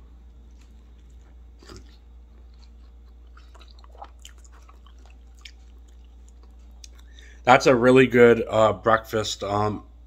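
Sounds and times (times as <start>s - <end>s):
person chewing food: 0.1s - 7.2s
mouth clicks and wet smacks: 3.3s - 7.2s.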